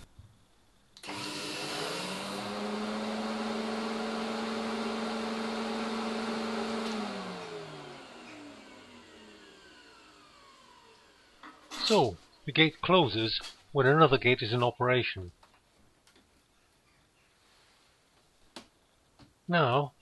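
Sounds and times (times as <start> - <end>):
vacuum motor whining: 1.0 - 11.4.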